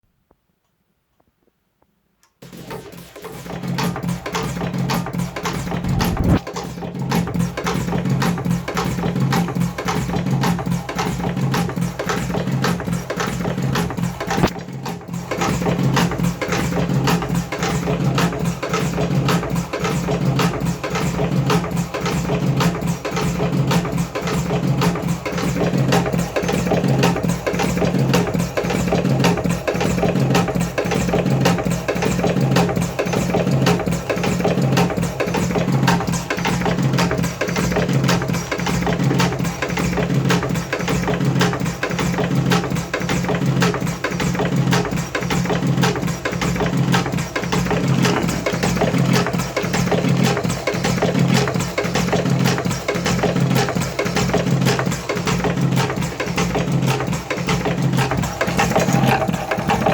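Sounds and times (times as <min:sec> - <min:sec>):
music with percussion beat: 0:15.5 - 0:59.9.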